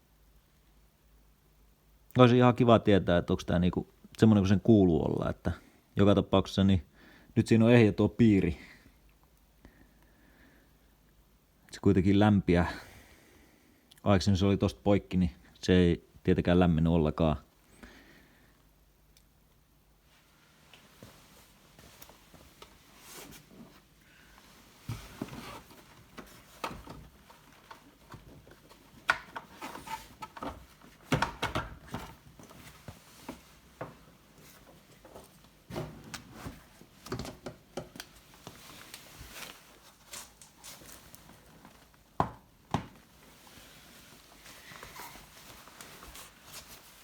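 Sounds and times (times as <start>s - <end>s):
parts being handled: 21.9s - 41.8s.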